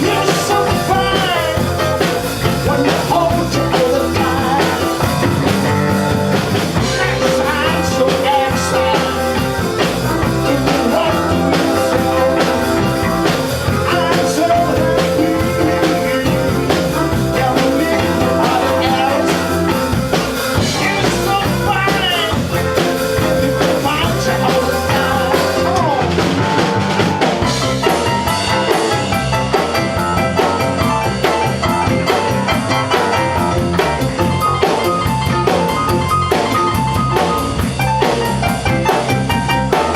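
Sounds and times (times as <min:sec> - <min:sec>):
blues-rock band playing: 0:00.0 - 0:39.9
drum kit beat: 0:00.0 - 0:39.9.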